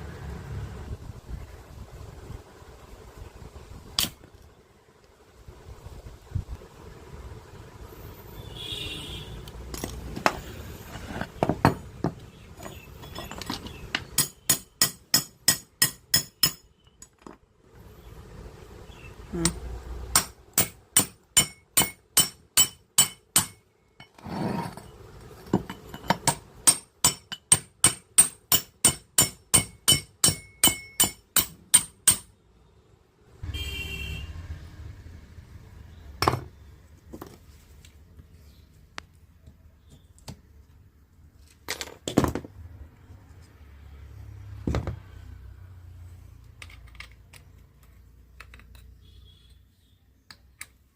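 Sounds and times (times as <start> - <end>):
hammer striking metal: 14.1 - 16.8, 19.4 - 23.6, 25.7 - 32.3.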